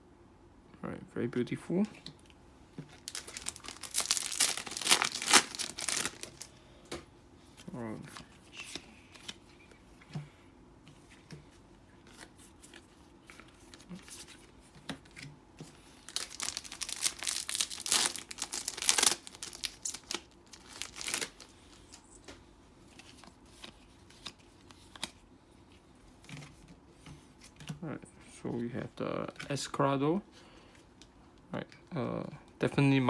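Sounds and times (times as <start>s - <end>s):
foil wrapper crinkling and tearing: 2.9s - 6.5s, 16.0s - 22.0s.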